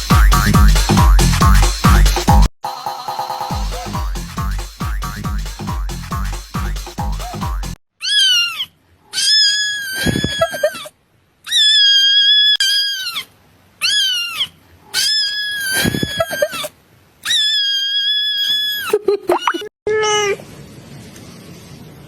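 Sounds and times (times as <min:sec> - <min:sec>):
kitten meowing: 0:11.5 - 0:18.9.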